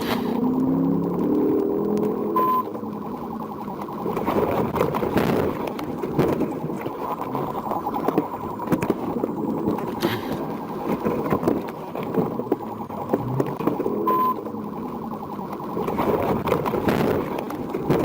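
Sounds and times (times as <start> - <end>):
engine and road noise: 0.0 - 18.0
police car siren: 0.0 - 18.0
short beep: 2.3 - 2.7, 14.0 - 14.4.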